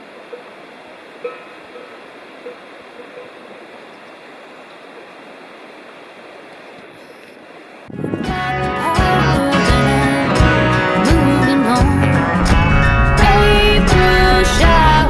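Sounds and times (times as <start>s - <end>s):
water rushing: 0.0s - 7.9s, 12.2s - 15.0s.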